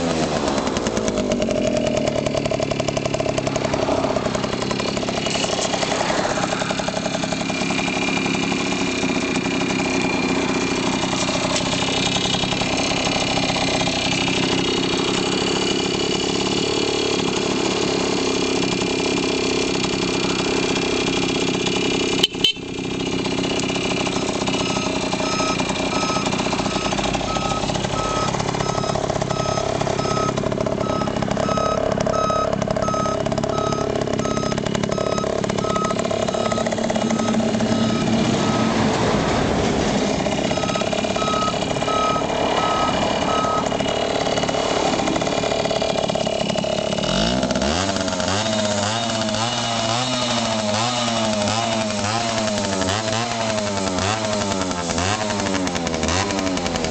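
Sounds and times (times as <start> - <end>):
two-stroke engine idling: 0.0 - 56.9
short beeps: 24.2 - 38.7, 40.5 - 43.7.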